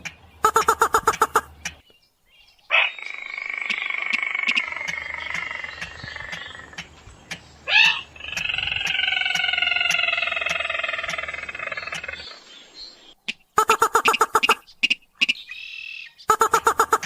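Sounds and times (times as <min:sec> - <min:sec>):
faint regular clicks: 0:00.8 - 0:01.9, 0:03.7 - 0:07.5.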